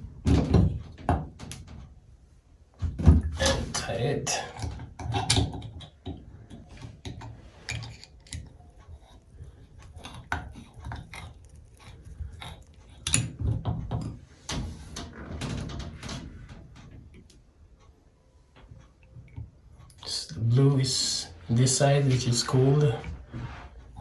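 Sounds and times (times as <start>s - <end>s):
faucet parts clicking and rattling: 4.5s - 14.2s.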